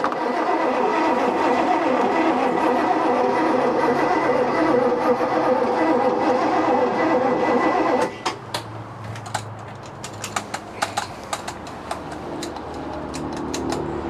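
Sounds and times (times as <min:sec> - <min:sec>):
engine starter cranking: 0:00.0 - 0:14.0
light clicks and ticks: 0:08.6 - 0:13.9.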